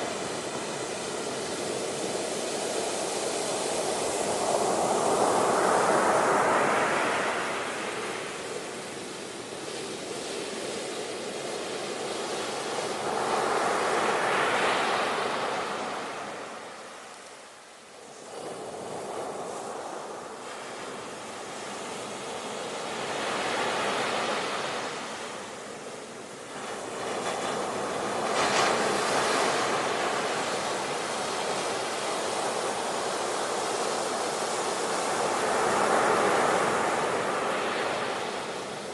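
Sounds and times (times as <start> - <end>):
ocean waves breaking: 18.2 - 38.9.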